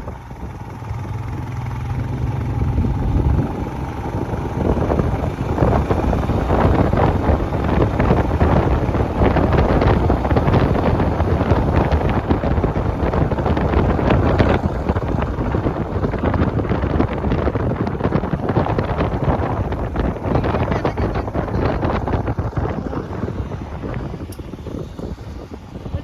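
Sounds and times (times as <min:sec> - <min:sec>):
motorcycle engine: 0:00.0 - 0:26.0
road noise: 0:00.0 - 0:26.0
wind buffeting microphone: 0:00.0 - 0:26.0.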